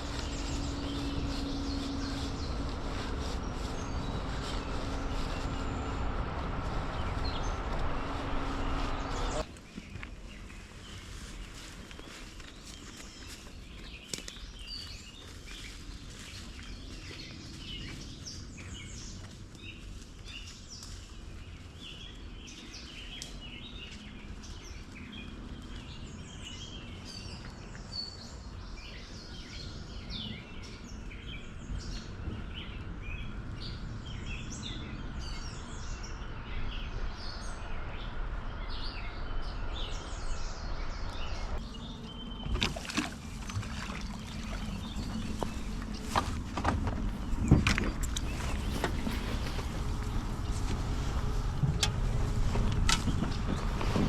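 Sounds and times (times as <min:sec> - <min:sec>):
birds chirping: 0:00.0 - 0:54.0
low outdoor rumble: 0:00.0 - 0:54.0.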